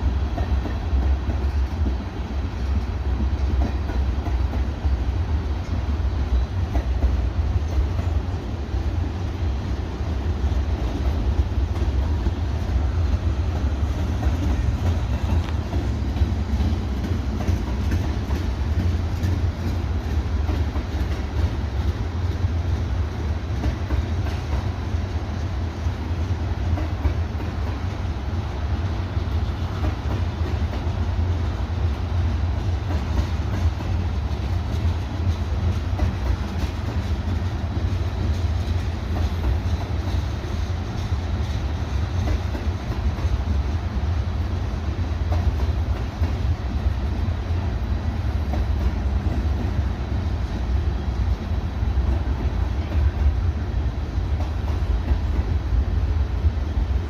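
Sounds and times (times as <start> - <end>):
freight train wheels rumbling: 0.0 - 57.0
wheels clacking over rail joints: 0.1 - 8.4, 10.4 - 28.3, 29.0 - 43.7.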